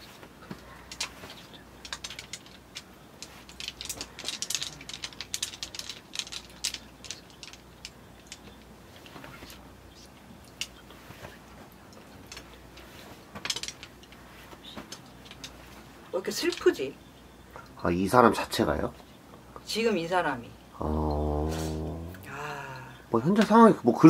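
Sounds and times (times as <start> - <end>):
light clicks and ticks: 0.2 - 16.9.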